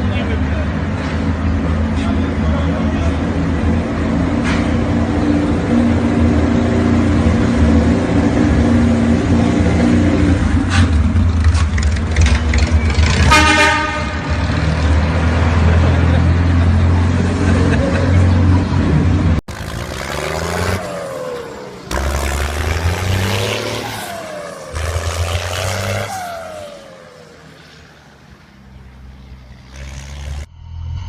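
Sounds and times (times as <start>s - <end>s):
car engine and road noise: 0.0s - 31.0s
car horn blast: 13.2s - 14.6s.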